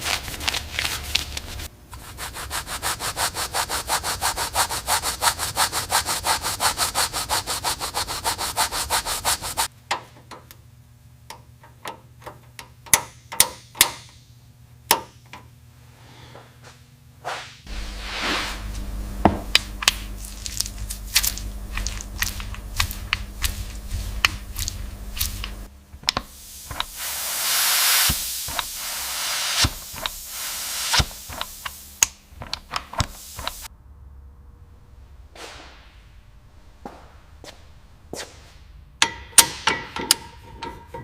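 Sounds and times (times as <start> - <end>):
steady hiss: 0.9 - 9.7, 17.4 - 33.7
workshop tool rumble: 17.7 - 27.2.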